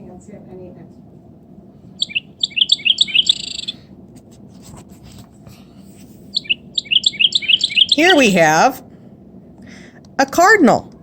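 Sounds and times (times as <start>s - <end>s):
wren singing: 1.9s - 3.8s, 6.3s - 8.8s.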